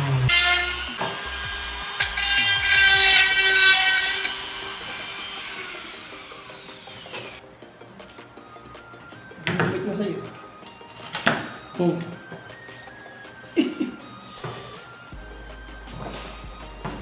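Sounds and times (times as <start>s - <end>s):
electric motor whining: 0.0s - 7.4s.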